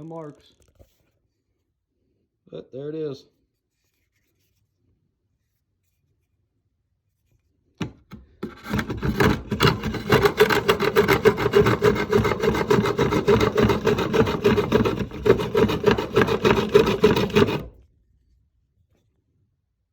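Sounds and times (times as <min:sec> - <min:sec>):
rasping strokes on wood: 0:08.4 - 0:17.8.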